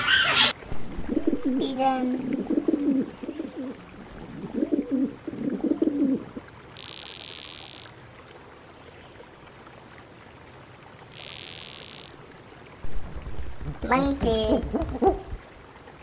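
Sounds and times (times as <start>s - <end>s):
pigeon cooing: 1.1s - 6.4s, 13.9s - 15.4s.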